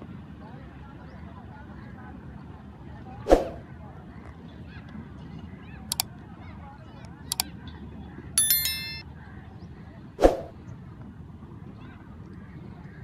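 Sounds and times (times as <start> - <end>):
metallic clang: 8.4 - 9.0
sharp clicks: 8.4 - 9.0.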